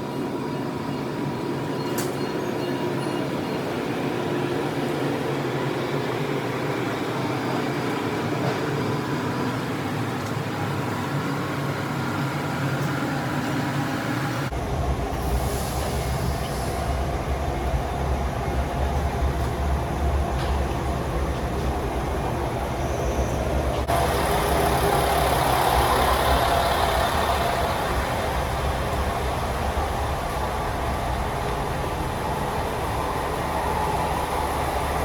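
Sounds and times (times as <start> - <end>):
diesel railcar engine idling: 2.4 - 35.0.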